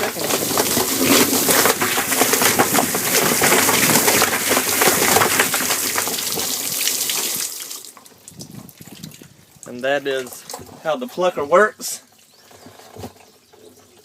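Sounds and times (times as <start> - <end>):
chicken plucker clattering: 0.0 - 7.4.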